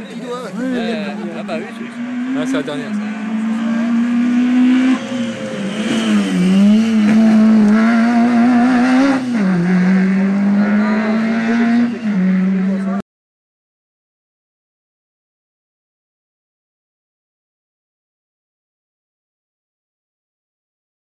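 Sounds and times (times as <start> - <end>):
rally car engine revving: 0.4 - 13.0.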